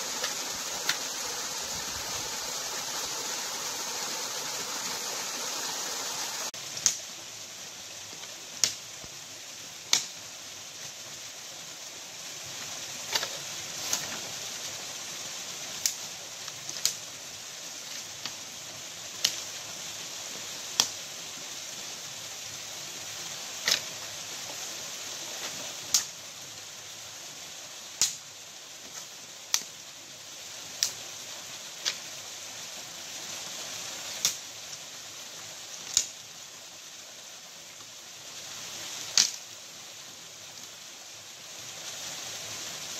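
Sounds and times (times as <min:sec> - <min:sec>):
water rushing: 0:00.0 - 0:06.6.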